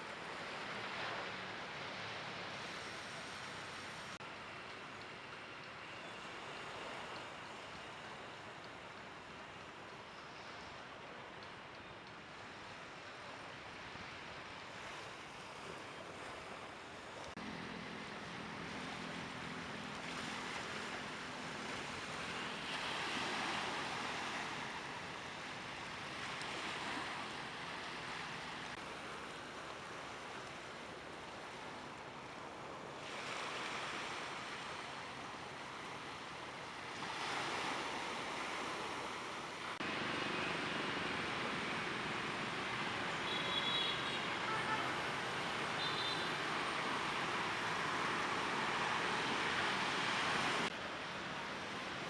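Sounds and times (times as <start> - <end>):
sea surf washing onto beach: 13.7 - 52.0
steady engine hum: 16.4 - 32.9, 39.7 - 52.0.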